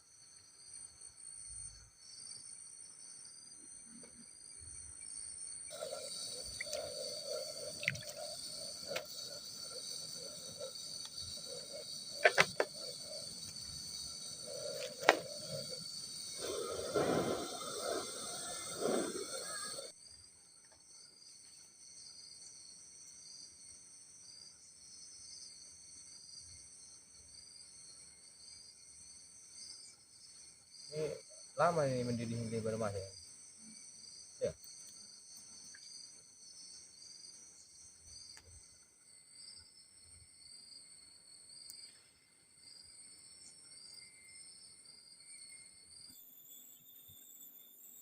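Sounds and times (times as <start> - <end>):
crickets chirping: 0.0 - 48.0
sharp clicks and knocks: 12.2 - 12.7.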